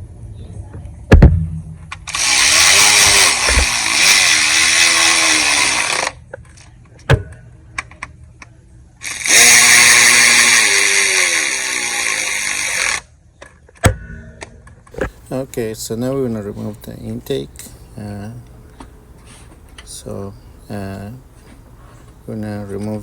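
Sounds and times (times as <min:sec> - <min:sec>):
power tool motor running: 0:02.1 - 0:06.2, 0:09.0 - 0:13.0.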